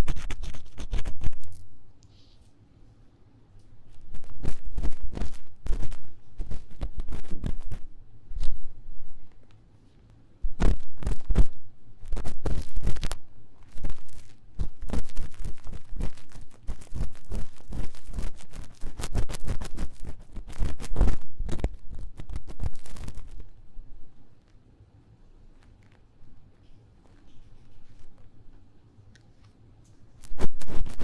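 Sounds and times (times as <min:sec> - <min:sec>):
tool scratching microphone ear: 0:00.0 - 0:01.6, 0:04.0 - 0:08.6, 0:10.5 - 0:23.4, 0:30.2 - 0:31.0.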